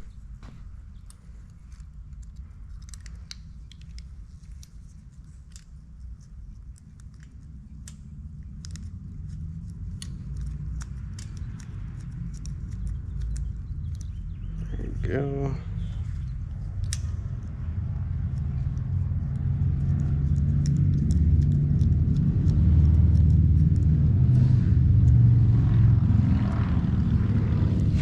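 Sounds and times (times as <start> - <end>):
low steady rumble: 0.0 - 28.0
metallic clicks of small parts: 0.9 - 14.6, 15.9 - 23.9.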